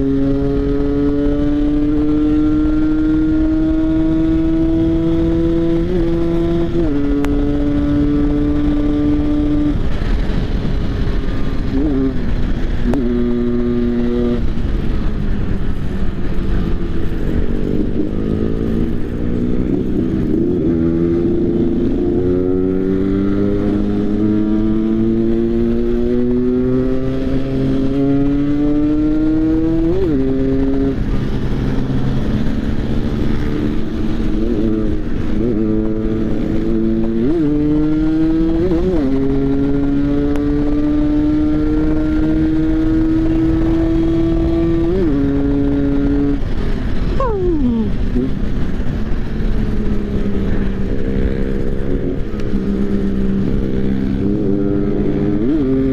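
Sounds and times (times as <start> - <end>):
motorcycle engine accelerating: 0.0 - 55.9
second engine passing: 0.0 - 55.9.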